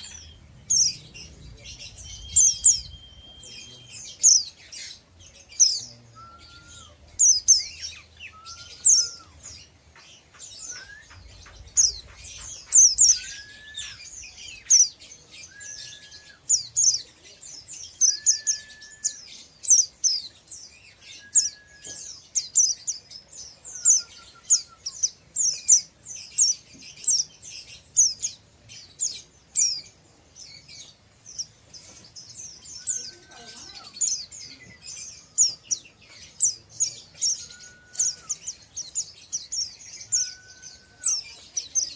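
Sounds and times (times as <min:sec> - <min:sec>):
bird twittering high chirps: 0:00.0 - 0:41.9.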